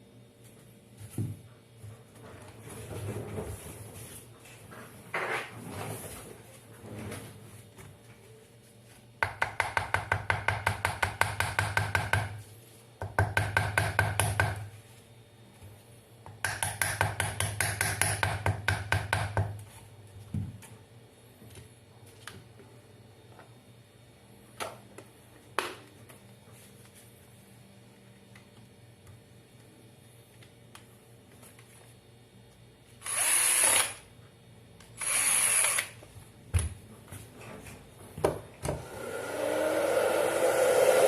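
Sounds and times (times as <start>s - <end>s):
hair dryer motor humming: 38.8s - 41.0s.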